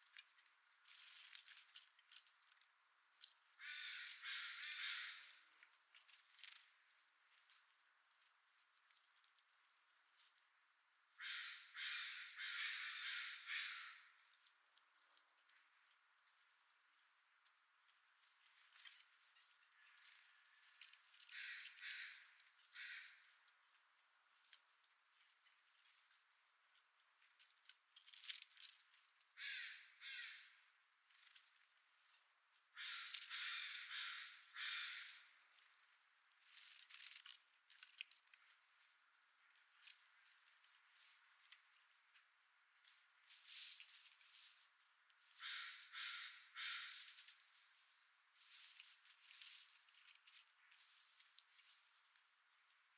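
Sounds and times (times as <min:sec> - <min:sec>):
crow harsh raspy calls: 0:03.6 - 0:05.4, 0:11.2 - 0:14.1, 0:21.3 - 0:23.3, 0:29.4 - 0:30.6, 0:32.8 - 0:35.3, 0:45.4 - 0:47.1.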